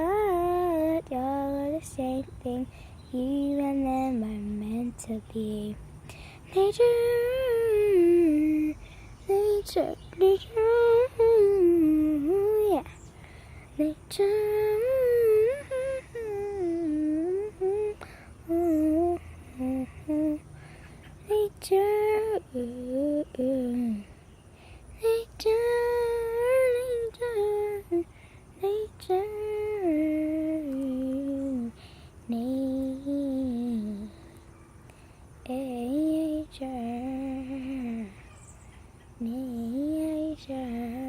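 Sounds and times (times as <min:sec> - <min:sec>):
person humming a melody: 0:00.0 - 0:24.2, 0:24.9 - 0:34.4, 0:35.4 - 0:38.2, 0:39.2 - 0:41.0
woman singing: 0:00.0 - 0:24.3, 0:24.9 - 0:34.3, 0:35.4 - 0:38.3, 0:39.2 - 0:41.0.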